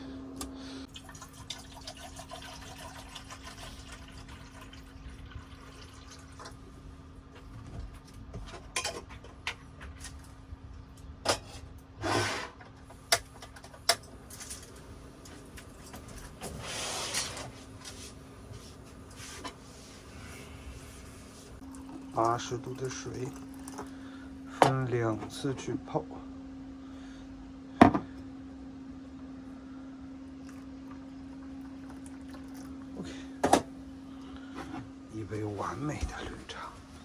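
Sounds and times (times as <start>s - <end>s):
steady low hum: 0.0s - 1.9s, 2.6s - 37.0s
water pouring into cup: 0.9s - 6.6s, 21.6s - 24.2s, 30.4s - 33.2s
cups clinking: 21.6s - 24.0s.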